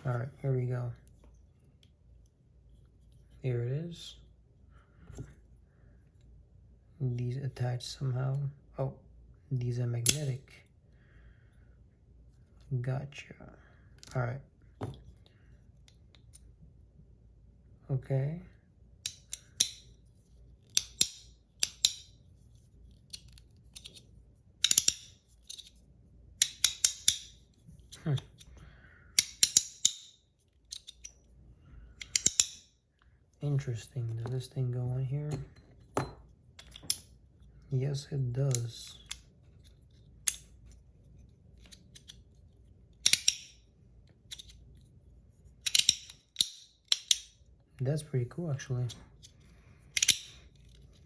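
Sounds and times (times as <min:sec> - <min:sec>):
magnetic parts clicking together: 0:32.0 - 0:32.6, 0:45.6 - 0:47.3, 0:49.9 - 0:50.8.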